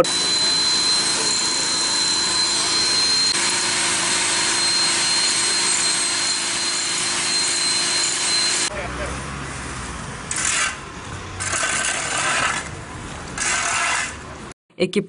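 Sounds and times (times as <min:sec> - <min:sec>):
machine whining: 0:00.0 - 0:09.3.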